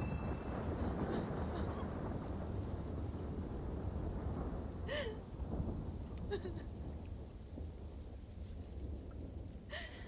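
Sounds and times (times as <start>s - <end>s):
heavy rain pouring: 0.0s - 7.0s
woman sobbing: 0.7s - 1.9s, 4.9s - 5.2s, 6.3s - 6.6s, 9.7s - 10.0s.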